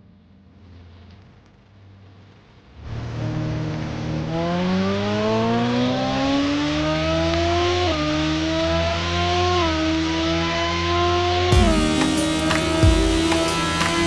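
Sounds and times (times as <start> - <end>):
motorcycle engine accelerating: 2.8 - 14.0.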